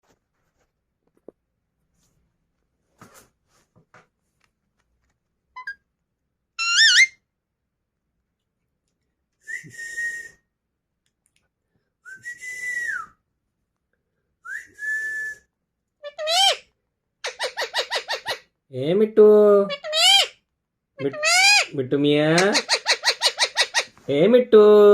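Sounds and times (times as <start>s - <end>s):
parrot whistling: 6.6s - 7.2s.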